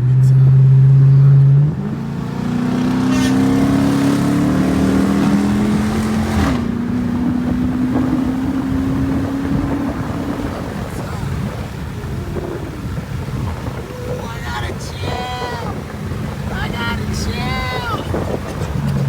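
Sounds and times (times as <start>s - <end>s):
car exhaust engine note: 0.0s - 14.3s.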